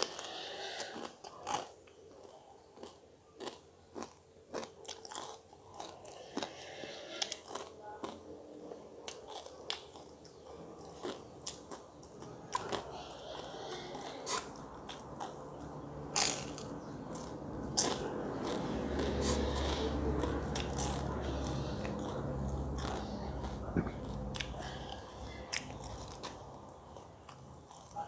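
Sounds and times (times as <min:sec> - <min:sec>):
crunching crisp flatbread: 0:00.0 - 0:28.0
low hum: 0:13.1 - 0:27.7
mouth noise: 0:19.2 - 0:26.0.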